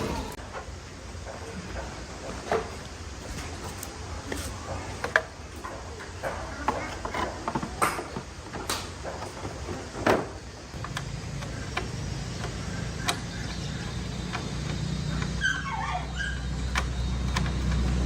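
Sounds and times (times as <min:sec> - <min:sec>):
motorbike engine idling: 0:10.4 - 0:18.0.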